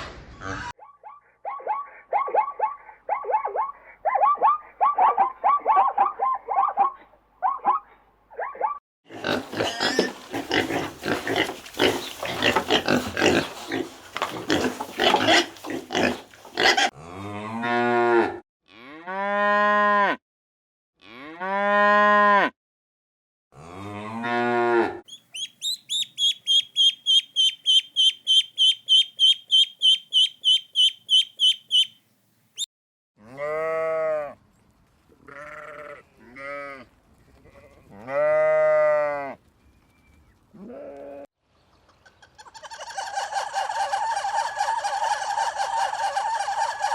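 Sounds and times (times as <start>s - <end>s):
high chirps: 25.1s - 32.0s.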